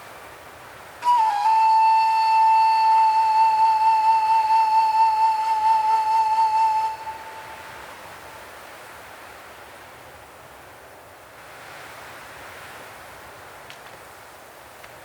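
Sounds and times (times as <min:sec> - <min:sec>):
faint wind-like hiss: 0:00.0 - 0:15.0
long flute note: 0:01.0 - 0:08.2.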